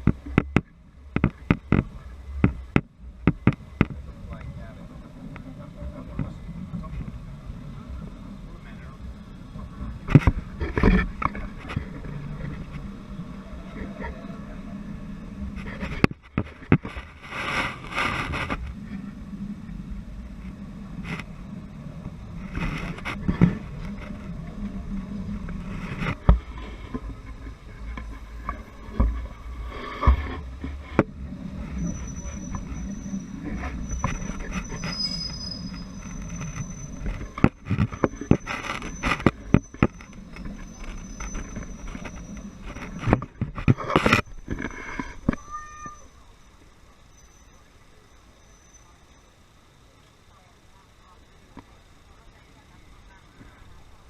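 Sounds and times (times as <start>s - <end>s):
wheels knocking and clanking: 0.0s - 46.0s
train rumble: 0.0s - 49.6s
thin high tone: 31.6s - 43.2s.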